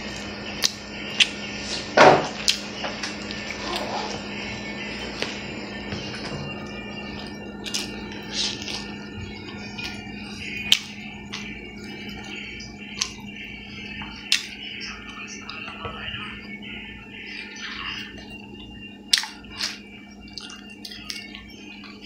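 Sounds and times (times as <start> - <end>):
steady low hum: 0.0 - 22.0
person chewing: 0.1 - 1.4, 2.4 - 4.3, 7.0 - 13.3, 14.0 - 14.6, 19.1 - 22.0.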